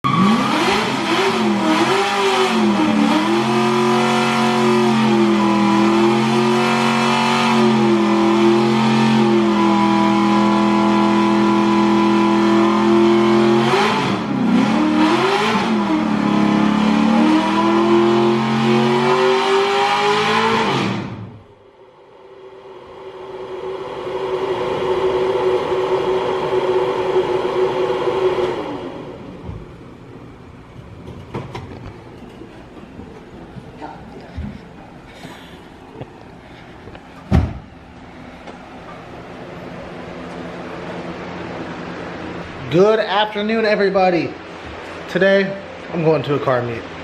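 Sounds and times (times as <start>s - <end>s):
car engine revving: 0.0s - 21.6s, 22.2s - 29.4s.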